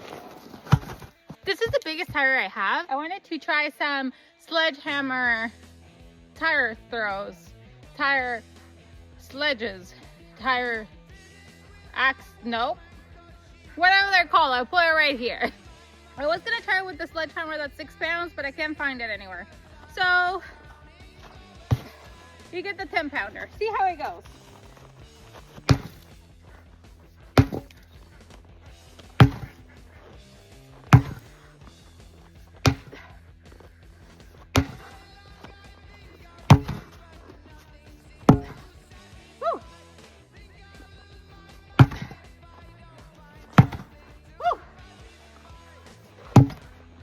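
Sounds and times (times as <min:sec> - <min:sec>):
background music: 0:00.0 - 0:47.0
sledgehammer thudding on tire: 0:00.4 - 0:02.2, 0:21.2 - 0:22.2, 0:24.0 - 0:28.0, 0:28.7 - 0:35.6, 0:36.3 - 0:37.1, 0:38.2 - 0:38.8, 0:41.7 - 0:42.3, 0:43.4 - 0:44.0, 0:46.2 - 0:46.8
sledgehammer striking a tire: 0:21.7 - 0:22.1, 0:25.5 - 0:26.1, 0:27.4 - 0:27.8, 0:29.0 - 0:29.7, 0:30.8 - 0:31.7, 0:32.6 - 0:33.2, 0:34.5 - 0:35.5, 0:36.5 - 0:37.0, 0:38.3 - 0:38.7, 0:41.8 - 0:42.2, 0:43.5 - 0:44.0, 0:46.3 - 0:46.7.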